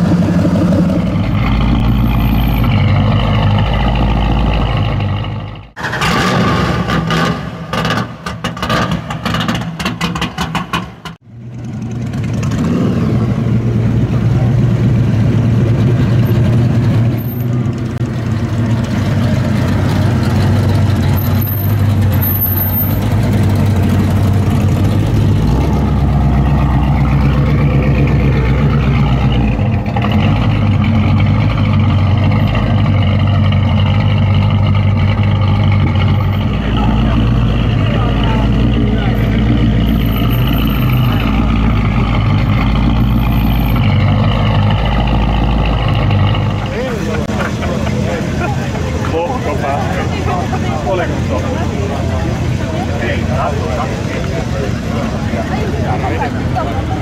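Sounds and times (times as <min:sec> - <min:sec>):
car engine idling: 0:13.3 - 0:57.0.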